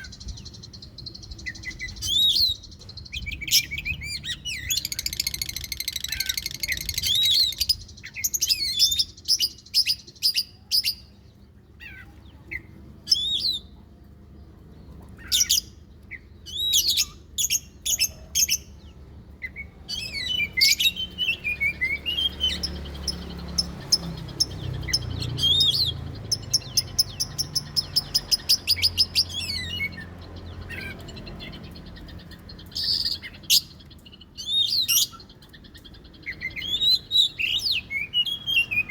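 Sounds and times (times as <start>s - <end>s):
songbird whistling song: 0.0s - 13.8s, 15.0s - 38.9s.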